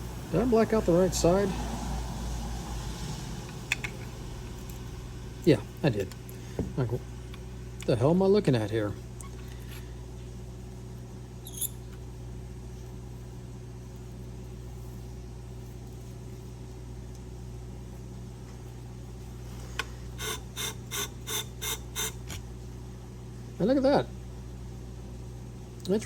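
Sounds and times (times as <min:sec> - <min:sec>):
sharpening machine motor hum: 0:20.1 - 0:22.4.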